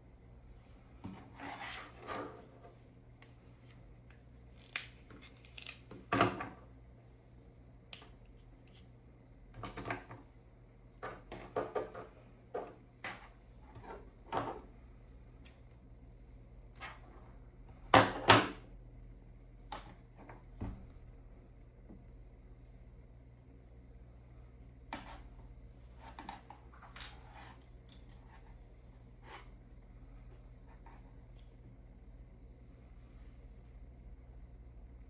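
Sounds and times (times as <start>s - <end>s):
hands rustling cable: 3.6s - 5.9s.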